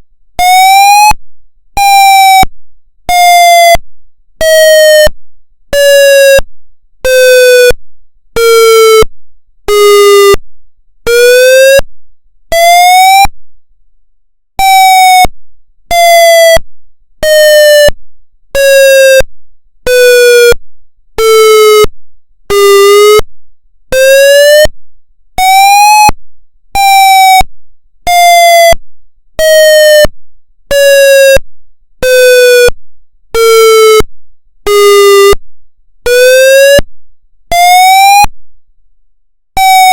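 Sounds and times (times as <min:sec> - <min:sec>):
siren pulse wail: 0:00.4 - 0:01.2, 0:12.6 - 0:13.3, 0:14.6 - 0:15.3, 0:22.5 - 0:23.2, 0:25.4 - 0:26.2, 0:26.8 - 0:27.5, 0:37.6 - 0:38.3, 0:39.6 - 0:39.9.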